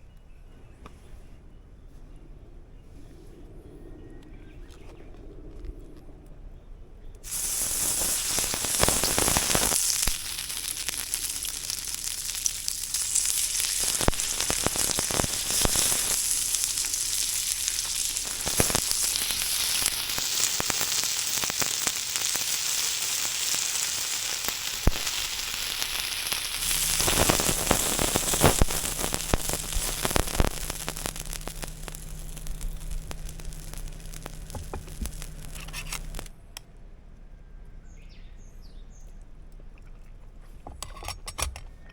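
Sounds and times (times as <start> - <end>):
low steady hum: 0.0 - 41.9
food sizzling in a hot pan: 7.3 - 36.3.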